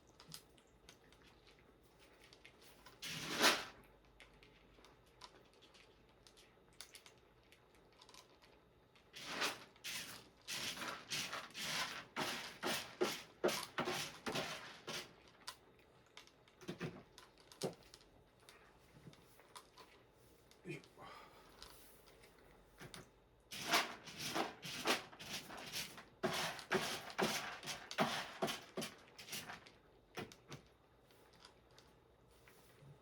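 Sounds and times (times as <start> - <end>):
cat litter being scraped: 2.9 - 3.8, 9.1 - 15.2, 23.5 - 29.7.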